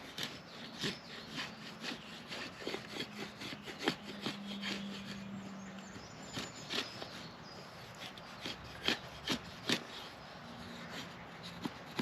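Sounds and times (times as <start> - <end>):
knife cutting into wood: 8.0 - 12.0.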